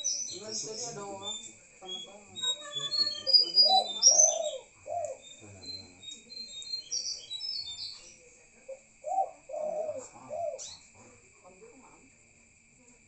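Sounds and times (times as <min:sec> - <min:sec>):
birds chirping: 0:00.0 - 0:11.2
dove cooing: 0:02.3 - 0:06.5, 0:08.7 - 0:10.9.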